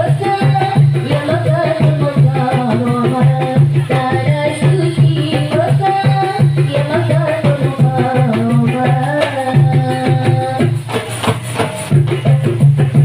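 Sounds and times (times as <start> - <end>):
person singing melody: 0.0 - 10.8
frame and hand drums: 0.0 - 13.0.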